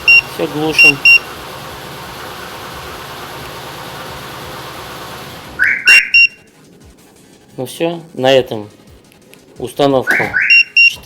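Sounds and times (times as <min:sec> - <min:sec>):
car alarm beeps and chirps: 0:00.0 - 0:01.3, 0:05.6 - 0:06.5, 0:10.1 - 0:11.0
car engine idling: 0:00.0 - 0:07.2.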